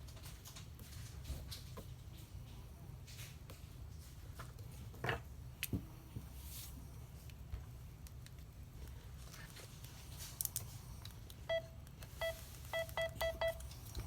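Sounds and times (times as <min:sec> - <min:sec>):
short electronic beeps: 0:11.5 - 0:13.6.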